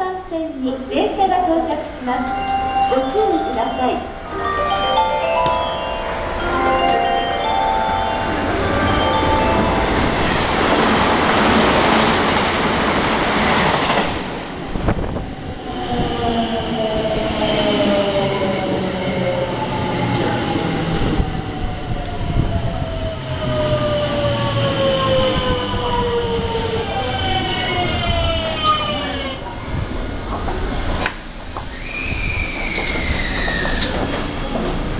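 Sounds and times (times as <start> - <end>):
rush of train wheels and air: 8.2 - 34.9.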